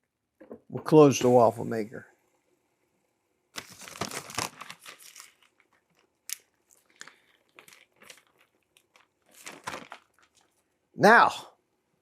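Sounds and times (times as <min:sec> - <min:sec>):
small crackles and pops: 0:03.5 - 0:10.7.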